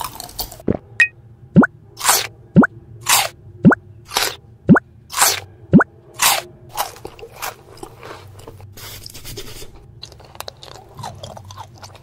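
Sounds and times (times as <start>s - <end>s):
crisp crunching and chewing: 0.0s - 0.7s, 6.2s - 8.7s, 9.8s - 12.0s.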